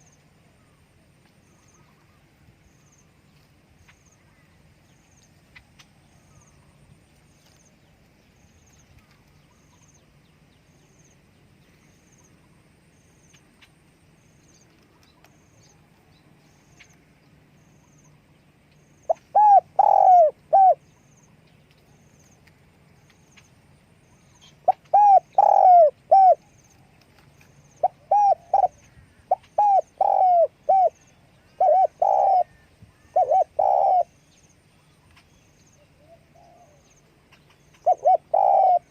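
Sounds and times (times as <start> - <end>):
dove cooing: 19.1 - 20.9, 24.4 - 26.6, 27.7 - 34.3, 35.8 - 37.0, 37.7 - 38.9.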